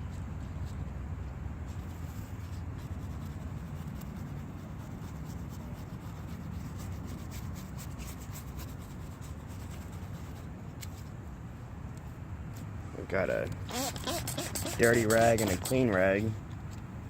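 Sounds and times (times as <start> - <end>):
brush scrubbing plastic: 1.8 - 10.5, 13.7 - 16.1.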